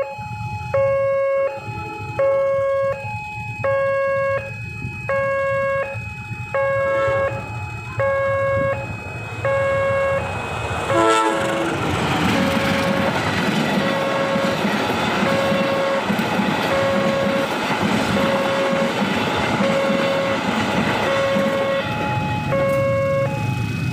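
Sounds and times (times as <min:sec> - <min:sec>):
level crossing alarm two-tone: 0:00.0 - 0:11.3, 0:12.2 - 0:23.8
train wheels rumbling: 0:00.0 - 0:23.9
train horn blast: 0:00.8 - 0:03.1, 0:06.6 - 0:14.6, 0:15.2 - 0:17.5, 0:18.1 - 0:23.4.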